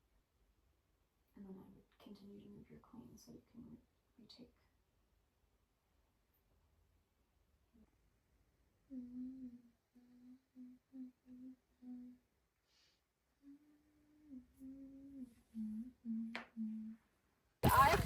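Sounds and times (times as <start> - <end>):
person humming a tune: 8.9 - 12.2, 13.4 - 17.0.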